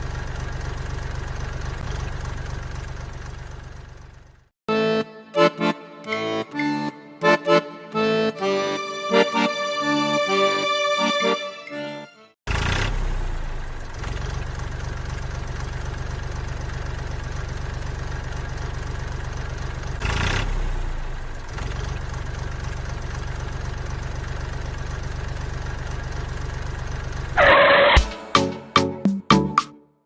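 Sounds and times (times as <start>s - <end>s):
small engine idling: 0.0s - 4.5s, 12.5s - 27.9s.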